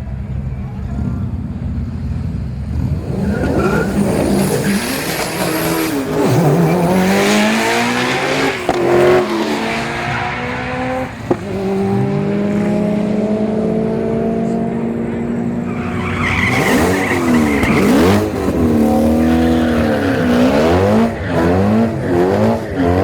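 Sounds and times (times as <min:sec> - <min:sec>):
car engine accelerating hard: 0:00.8 - 0:23.0.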